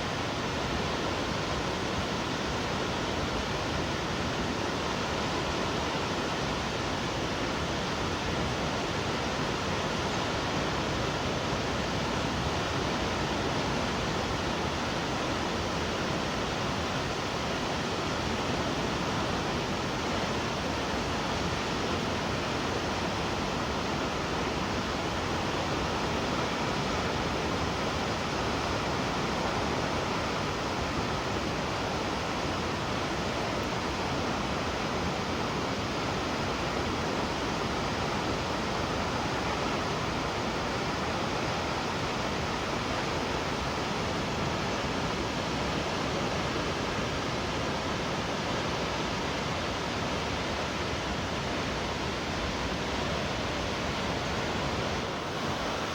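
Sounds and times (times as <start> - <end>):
waterfall roaring: 26.9 - 55.9.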